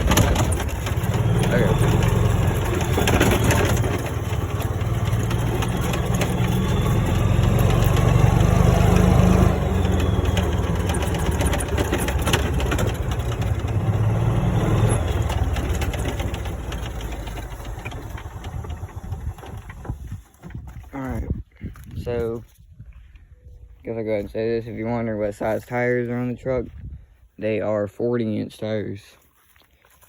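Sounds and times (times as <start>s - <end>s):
rattles and knocks from ride: 0.0s - 21.3s
golf cart engine hum: 0.0s - 22.3s.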